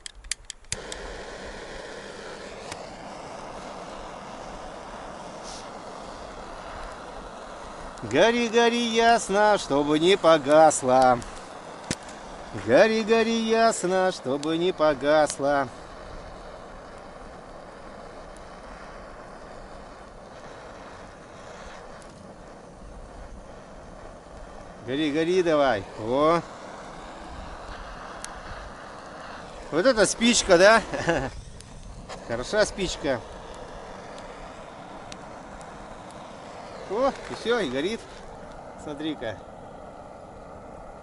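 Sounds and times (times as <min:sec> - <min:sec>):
gas burner hissing: 0:00.0 - 0:41.0
wind rushing: 0:22.8 - 0:41.0.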